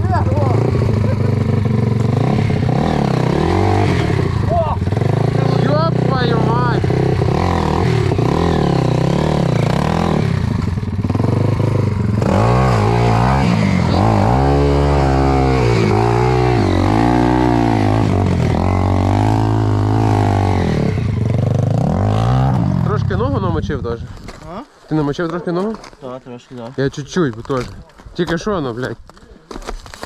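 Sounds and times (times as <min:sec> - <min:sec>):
motorcycle engine revving: 0:00.0 - 0:23.8.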